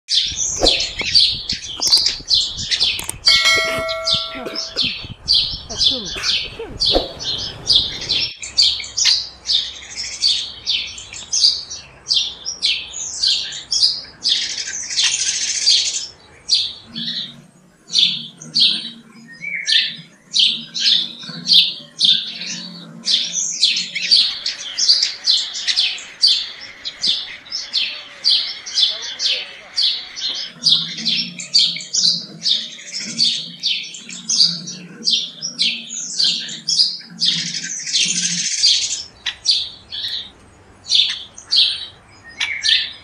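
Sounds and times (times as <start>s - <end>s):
small birds chirping: 0.1s - 43.0s.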